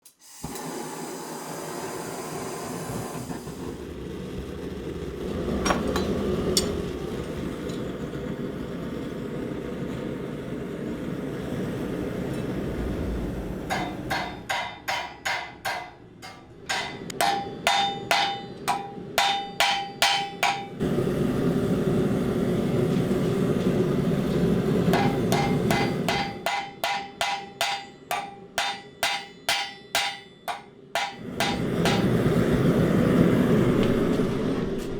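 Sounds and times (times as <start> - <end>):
hammer striking steel on anvil: 5.6 - 6.8, 13.7 - 20.8, 24.9 - 32.5
forge rushing: 11.4 - 14.5.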